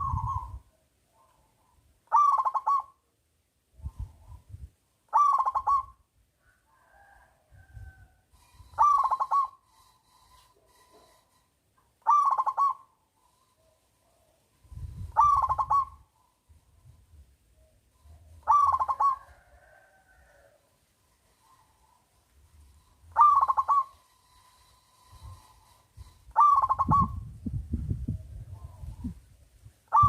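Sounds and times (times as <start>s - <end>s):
dove cooing: 0.0s - 1.5s, 2.1s - 3.0s, 5.1s - 6.0s, 8.6s - 11.2s, 12.0s - 16.4s, 17.6s - 20.6s, 22.8s - 27.3s.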